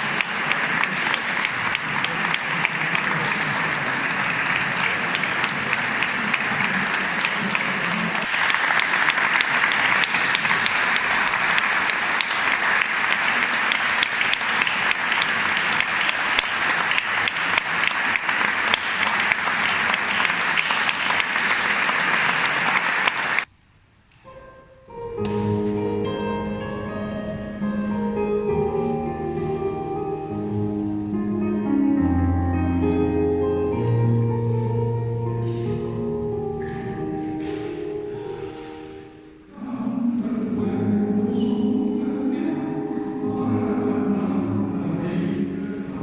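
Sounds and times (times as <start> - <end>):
audience applauding: 0.0 - 23.5
piano playing: 24.2 - 46.0.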